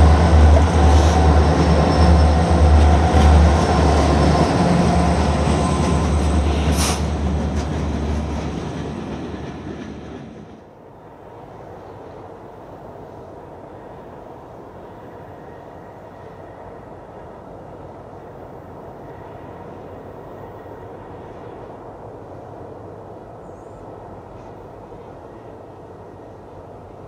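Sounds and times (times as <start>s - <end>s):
freight cars rolling past: 0.0s - 10.6s
diesel locomotive engines droning: 0.0s - 27.0s
distant train rumble: 0.0s - 27.0s.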